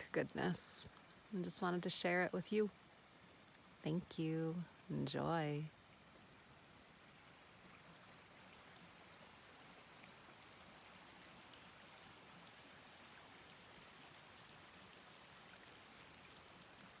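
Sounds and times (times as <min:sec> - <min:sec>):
stream running water: 0:00.0 - 0:17.0.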